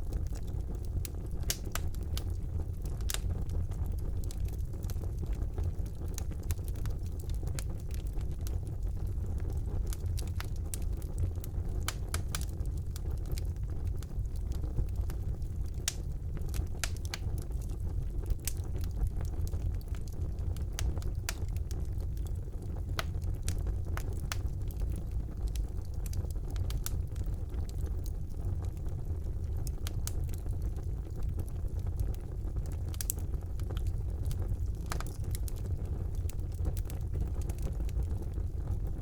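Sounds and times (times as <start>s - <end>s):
fire crackling and popping: 0.0s - 39.0s
low rumble of flames: 0.0s - 39.0s.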